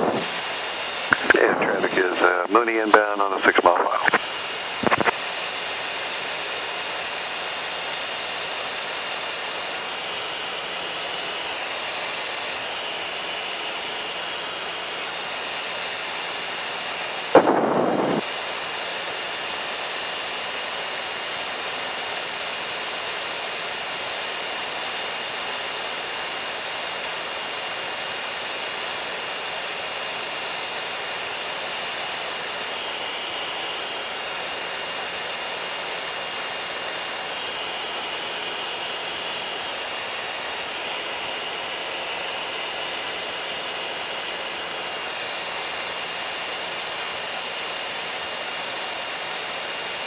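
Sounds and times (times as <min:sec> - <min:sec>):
airplane engine and propeller drone: 0:00.0 - 0:50.0
faint constant whine: 0:00.0 - 0:50.0
short loud burst of noise: 0:17.4 - 0:18.2.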